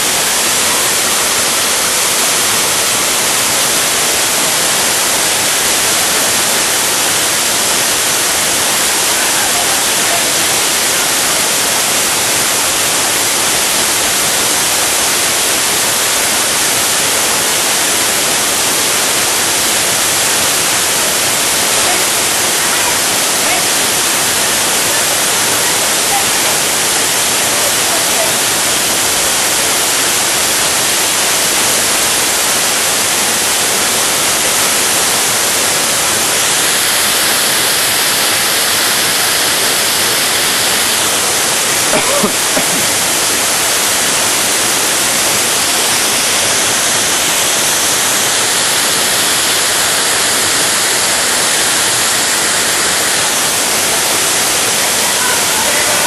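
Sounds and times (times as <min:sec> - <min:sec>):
waterfall rushing onto rock: 0:00.0 - 0:56.0.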